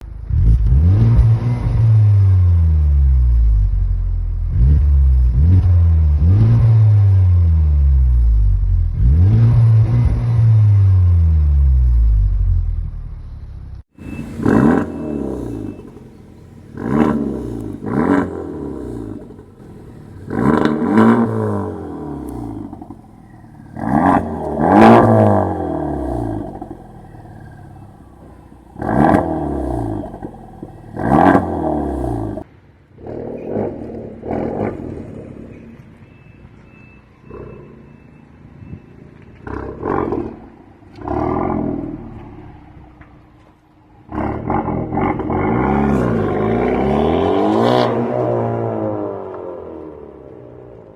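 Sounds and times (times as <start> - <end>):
car engine revving: 0.0 - 35.6, 44.1 - 50.9.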